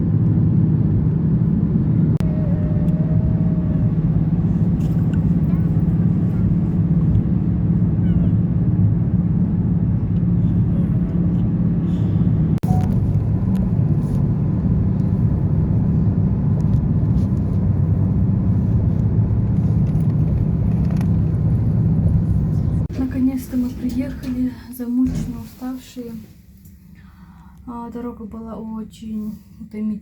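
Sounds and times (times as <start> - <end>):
car driving on highway: 0.0 - 22.9.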